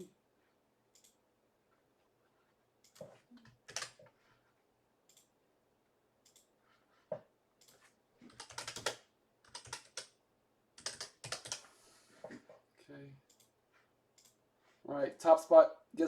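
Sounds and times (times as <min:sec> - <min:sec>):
typing on computer keyboard: 0:02.8 - 0:04.1, 0:07.6 - 0:10.2, 0:10.8 - 0:11.7.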